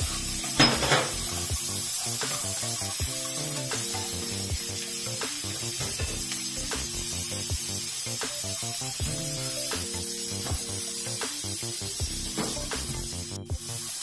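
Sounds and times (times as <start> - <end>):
background music: 0.0 - 14.0
onion sizzling in oil: 0.0 - 14.0
spatula scraping and tapping pan: 0.4 - 4.5.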